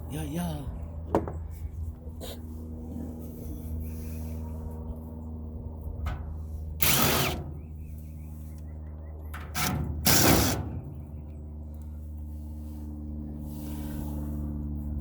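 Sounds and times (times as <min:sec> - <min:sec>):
steady low hum: 0:00.0 - 0:15.0
power drill running: 0:06.8 - 0:07.5, 0:09.6 - 0:10.6.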